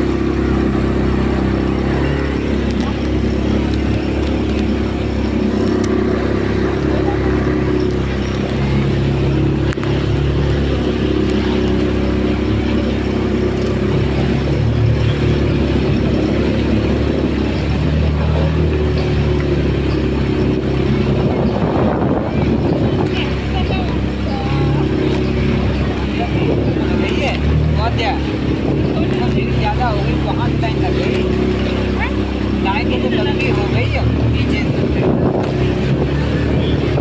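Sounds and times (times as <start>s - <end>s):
motorboat engine droning: 0.0s - 37.0s.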